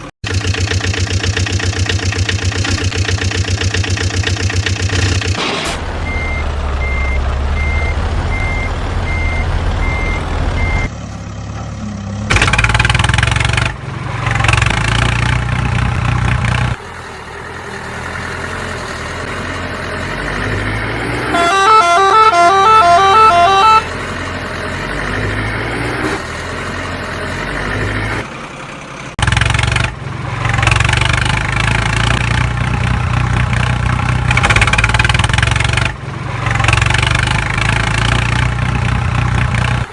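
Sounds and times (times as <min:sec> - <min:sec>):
vehicle engines: 0:00.0 - 0:39.9
reversing beep: 0:06.0 - 0:10.9
horn playing a tune: 0:21.3 - 0:23.9.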